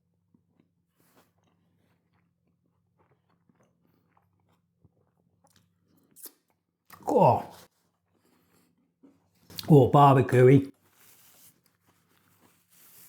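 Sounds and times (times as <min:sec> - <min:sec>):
soft chewing mouth clicks: 0:00.3 - 0:07.0.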